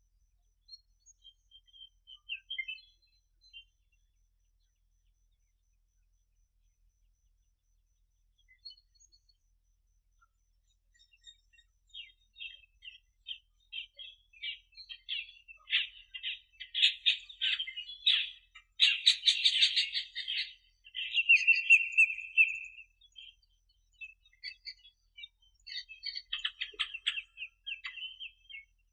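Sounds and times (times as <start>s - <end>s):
birds chirping: 0.7s - 3.8s, 11.0s - 28.9s.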